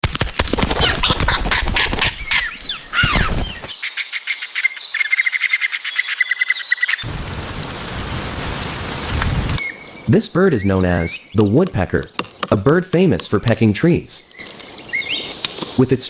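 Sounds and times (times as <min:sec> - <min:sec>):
woodpecker pecking wood: 0:00.0 - 0:07.0, 0:10.7 - 0:15.8
chattering bird call: 0:00.8 - 0:07.0, 0:09.6 - 0:15.6
steady rain-like hiss: 0:05.7 - 0:11.4.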